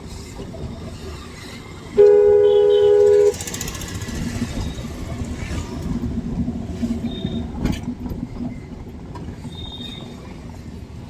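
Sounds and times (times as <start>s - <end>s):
car road and engine rumble: 0.0s - 11.0s
brief high-pitched tone: 2.0s - 3.4s.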